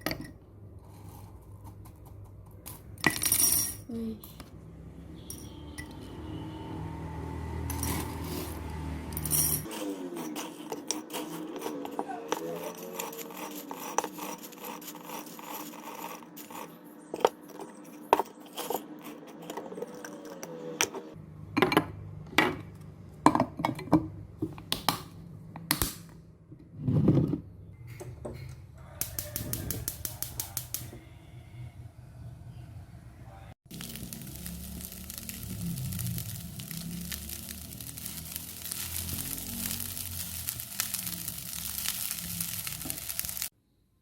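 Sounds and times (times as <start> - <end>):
small objects clinking: 2.6 - 4.3, 7.7 - 9.7, 33.7 - 43.5.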